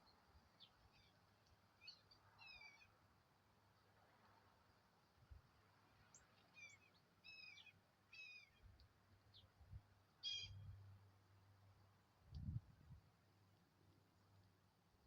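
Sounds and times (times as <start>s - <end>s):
bird calling: 10.2s - 10.6s.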